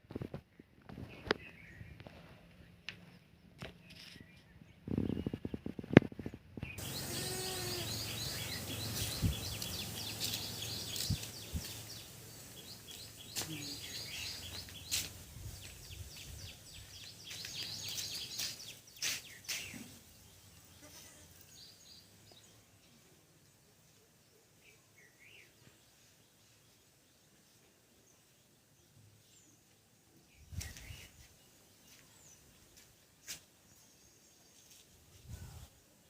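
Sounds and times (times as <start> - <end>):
small birds chirping: 0.1 - 36.0
bleat-like call: 7.0 - 7.9.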